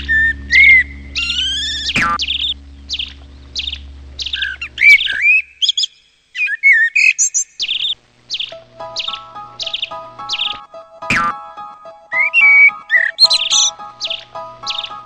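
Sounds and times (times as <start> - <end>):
steady musical notes: 0.0 - 4.7
warbling birdsong: 0.0 - 10.7, 12.1 - 15.0
bird chirping: 0.0 - 11.3, 12.1 - 15.0.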